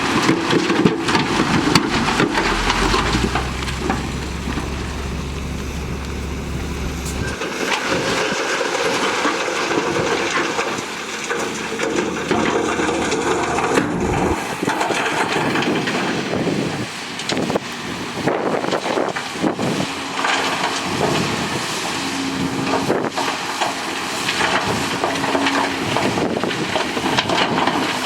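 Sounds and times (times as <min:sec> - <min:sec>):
rattling scraping noise: 0:00.0 - 0:16.7
diesel engine running: 0:00.0 - 0:28.0
low steady hum: 0:01.0 - 0:07.4.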